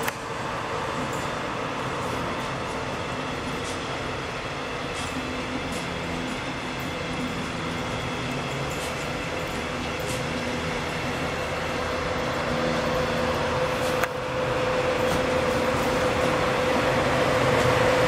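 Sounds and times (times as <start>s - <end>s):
train hum: 0.0s - 18.0s
train wheels rumbling on rails: 0.0s - 18.0s.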